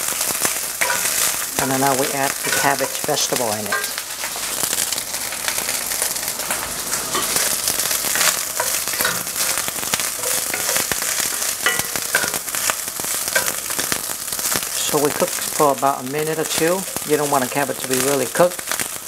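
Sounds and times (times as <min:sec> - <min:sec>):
rice and cabbage sizzling in a pan: 0:00.0 - 0:19.0
wooden spatula stirring food: 0:06.5 - 0:15.6.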